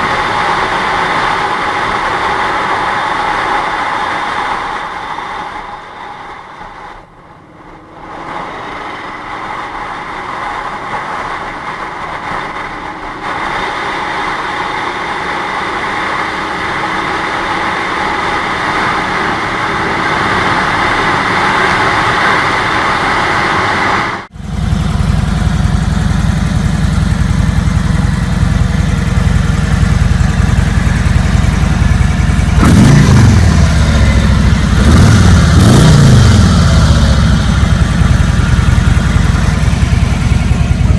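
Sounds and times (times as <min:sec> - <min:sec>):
deep exhaust rumble: 0:00.0 - 0:40.9
motorcycle engine running: 0:07.2 - 0:40.9.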